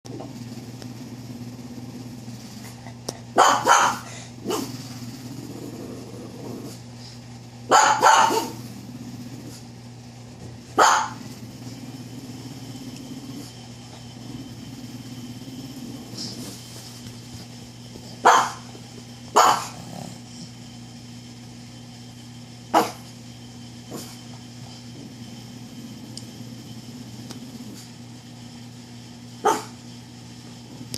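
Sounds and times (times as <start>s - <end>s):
steady low hum: 0.1s - 30.9s
dog barking: 3.4s - 4.7s, 7.7s - 8.6s, 10.8s - 11.2s, 18.2s - 18.6s, 19.3s - 19.8s, 22.8s - 23.0s, 29.4s - 29.8s.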